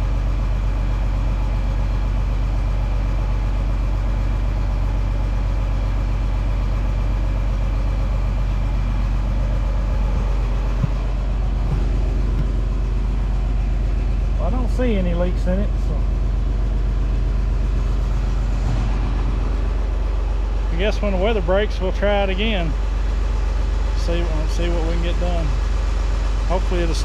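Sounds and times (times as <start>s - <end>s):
tractor engine idling: 0.0s - 27.0s
short knock: 10.1s - 12.7s.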